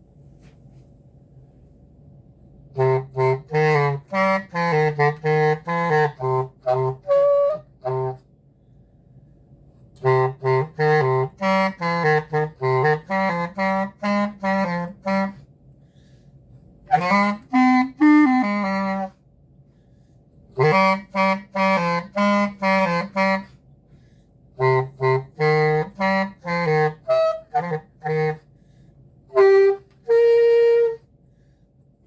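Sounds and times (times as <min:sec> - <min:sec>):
woodwind playing short notes: 0:02.7 - 0:08.4, 0:10.0 - 0:15.5, 0:16.9 - 0:19.2, 0:20.6 - 0:23.6, 0:24.6 - 0:28.5, 0:29.3 - 0:31.2.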